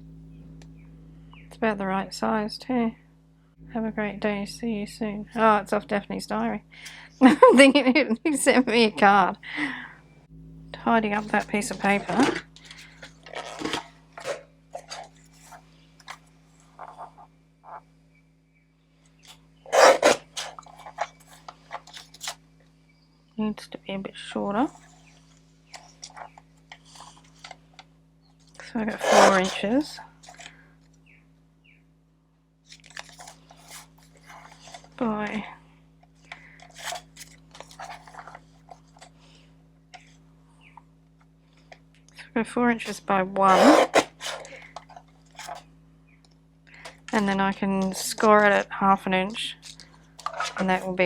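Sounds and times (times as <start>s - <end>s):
low electrical hum: 0.0s - 51.0s
paper rasp: 11.2s - 16.2s, 19.7s - 22.3s, 28.9s - 30.5s, 43.4s - 45.6s
paper rustling and scraping: 11.2s - 17.8s, 19.2s - 22.4s, 24.7s - 27.6s, 28.6s - 30.5s, 32.7s - 35.0s, 36.6s - 39.2s, 42.9s - 45.7s, 49.6s - 51.0s.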